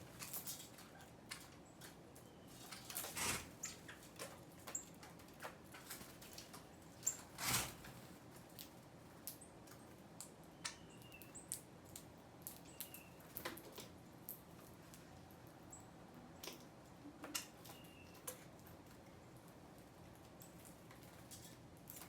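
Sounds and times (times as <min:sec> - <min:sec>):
birds pecking and tapping: 0:00.0 - 0:22.0
wings fluttering: 0:02.5 - 0:04.8, 0:05.8 - 0:08.2.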